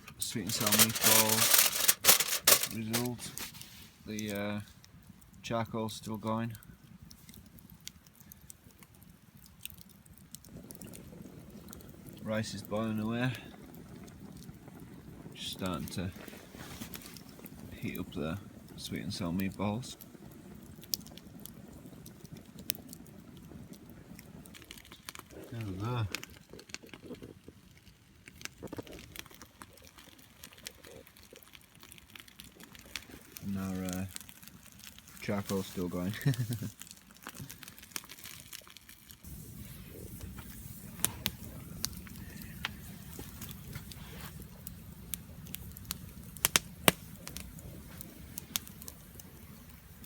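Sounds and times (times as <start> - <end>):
food crackling in a pan: 0.0 - 50.0
sharp pops: 46.4 - 47.4.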